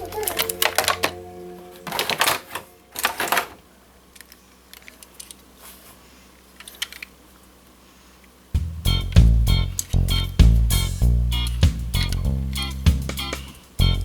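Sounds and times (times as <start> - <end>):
toy airplane clicks and rattles: 1.9 - 5.5, 6.6 - 7.2.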